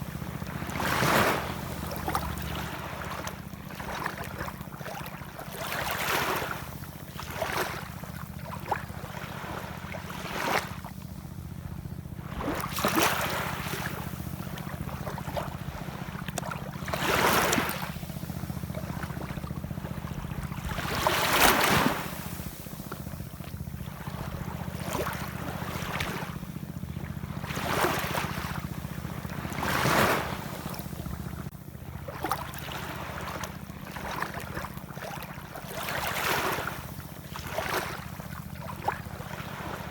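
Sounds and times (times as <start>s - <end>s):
steady low rumble: 0.0s - 5.8s, 6.6s - 35.6s
ocean waves washing in: 12.2s - 39.9s.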